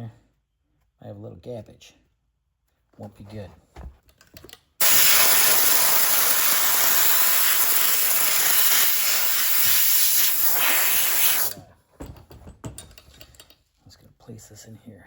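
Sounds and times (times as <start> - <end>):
aerosol spray hissing: 4.8 - 11.6.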